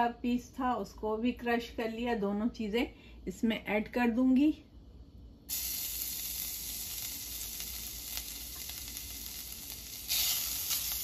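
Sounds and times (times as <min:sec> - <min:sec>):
garlic sizzling in hot oil: 0:05.5 - 0:11.0.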